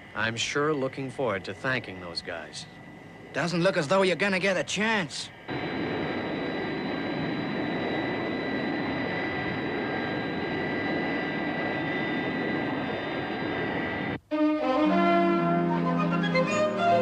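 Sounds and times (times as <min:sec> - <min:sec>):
jet engines running: 0:00.0 - 0:14.2.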